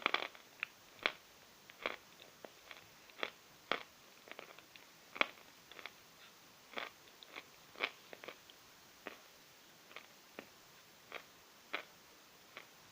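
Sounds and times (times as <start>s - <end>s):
person chewing chalk crunches: 0.0s - 6.0s.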